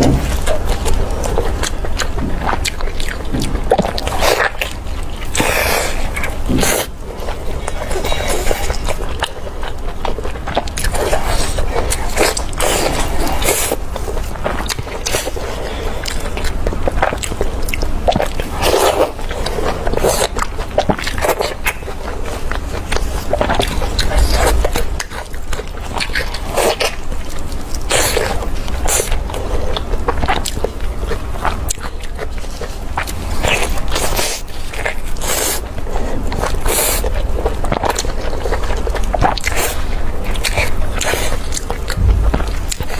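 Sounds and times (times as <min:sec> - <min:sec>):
steady low hum: 0:00.0 - 0:09.5, 0:22.8 - 0:26.8, 0:41.6 - 0:42.9
person chewing food: 0:00.0 - 0:42.9.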